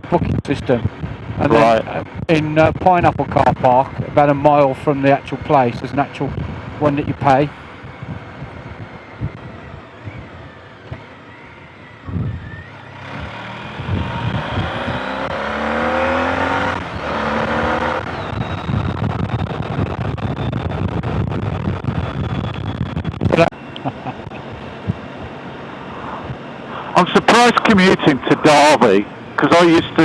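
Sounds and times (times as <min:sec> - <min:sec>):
wind noise: 0:00.0 - 0:26.9
motorcycle engine: 0:00.7 - 0:30.0.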